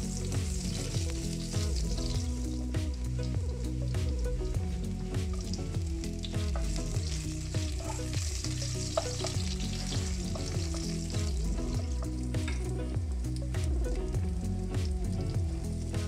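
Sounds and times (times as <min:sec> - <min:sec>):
garlic sizzling in hot oil: 0:00.0 - 0:16.0.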